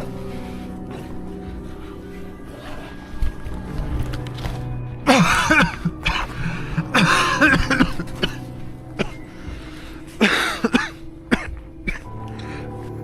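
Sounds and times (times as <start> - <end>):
background music: 0.0 - 13.0
person coughing: 5.1 - 9.2, 10.2 - 12.1.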